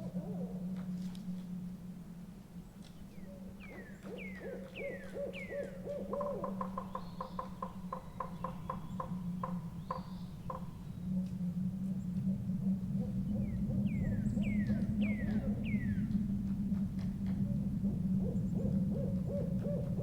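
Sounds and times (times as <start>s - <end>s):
owl hooting: 0.0s - 1.6s, 3.1s - 16.5s, 17.2s - 20.0s
birds calling: 2.8s - 11.2s, 11.8s - 16.5s
steady low rumble: 7.4s - 20.0s.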